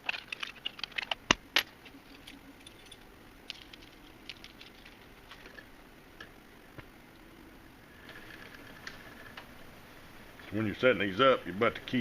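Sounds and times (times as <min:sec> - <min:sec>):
metal keys clicking and rattling: 0:02.0 - 0:05.5.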